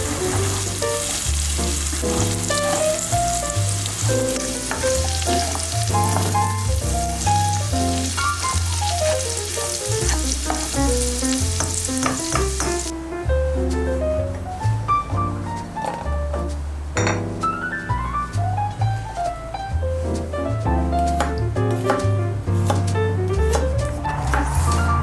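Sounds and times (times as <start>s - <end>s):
food sizzling in a pan: 0.0s - 12.9s
background music: 0.0s - 25.0s.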